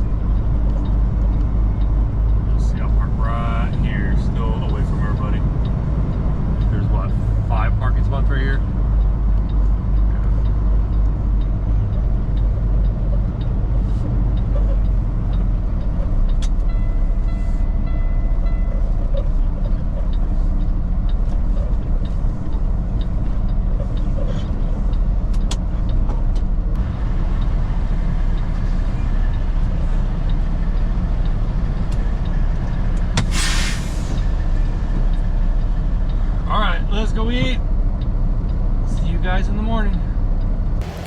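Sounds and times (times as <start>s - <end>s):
diesel truck engine rumbling: 0.0s - 41.0s
air brake hiss: 33.2s - 34.2s.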